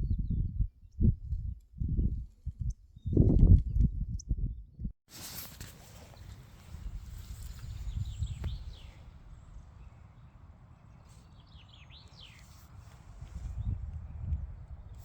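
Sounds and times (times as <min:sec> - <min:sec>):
birds chirping: 0:05.9 - 0:15.0.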